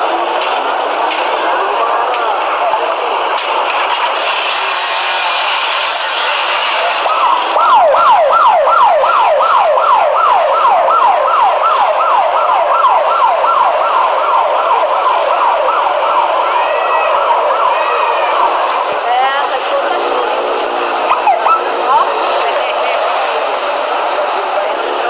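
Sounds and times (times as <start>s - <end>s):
traffic noise: 0.0s - 25.0s
police siren whooping: 5.8s - 19.1s, 20.1s - 24.5s.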